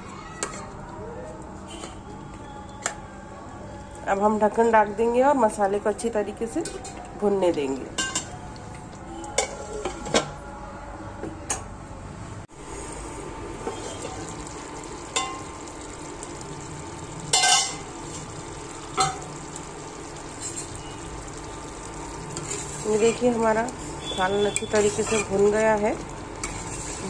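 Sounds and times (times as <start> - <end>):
metal clinking against pot: 8.0 - 8.4, 17.3 - 17.9
scrape in pot: 9.4 - 10.3, 22.4 - 23.1, 23.8 - 25.5, 26.4 - 27.0
food sizzling in a pot: 12.6 - 27.0.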